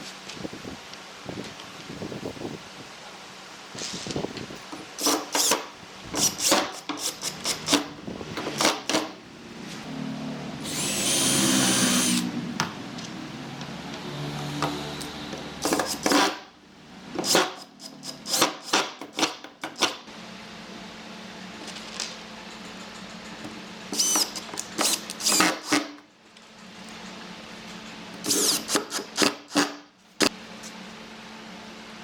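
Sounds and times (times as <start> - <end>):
power tool motor whining: 5.0 - 7.9, 10.6 - 12.4, 23.9 - 25.9, 28.2 - 29.3.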